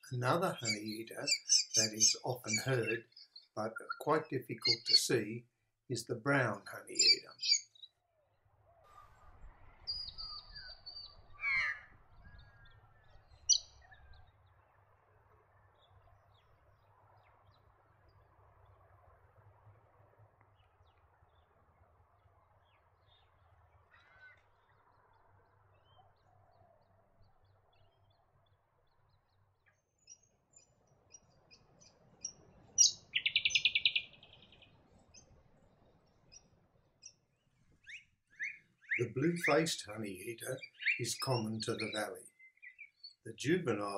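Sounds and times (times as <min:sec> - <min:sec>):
bird calling: 0:00.0 - 0:07.9, 0:09.9 - 0:14.2, 0:32.2 - 0:34.7, 0:37.8 - 0:43.9.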